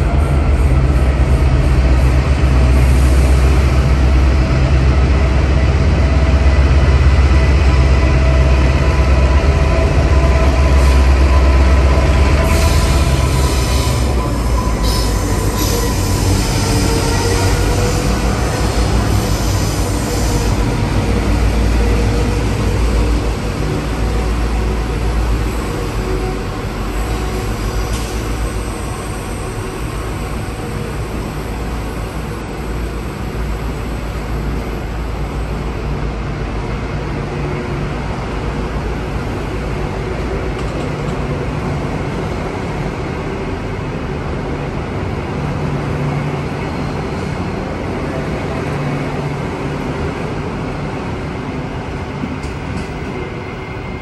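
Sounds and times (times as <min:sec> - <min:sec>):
electric train rumbling on track: 0:00.0 - 0:54.0.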